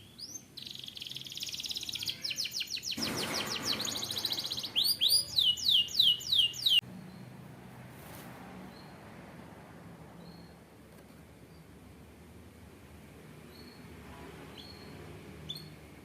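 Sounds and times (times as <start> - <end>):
canary singing: 0.0 - 7.3.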